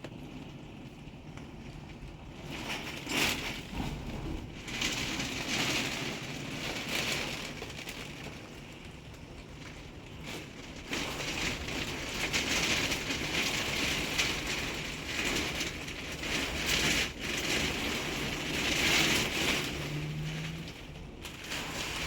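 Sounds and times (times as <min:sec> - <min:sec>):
heavy rain pouring: 0:00.3 - 0:22.0.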